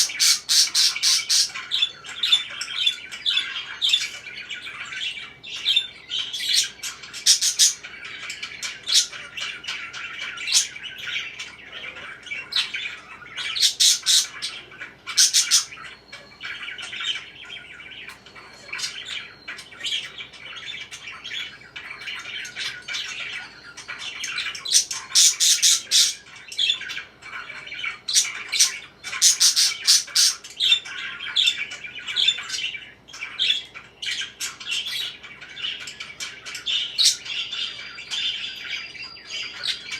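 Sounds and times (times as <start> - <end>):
parakeet squawks: 0.0 - 39.9
parakeets chirping: 0.0 - 39.9.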